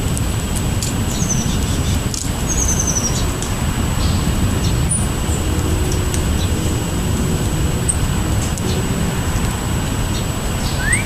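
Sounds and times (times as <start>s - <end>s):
steady low rumble: 0.0s - 11.0s
small birds chirping: 0.8s - 6.8s, 7.8s - 11.0s
descending bird trills: 10.1s - 11.0s.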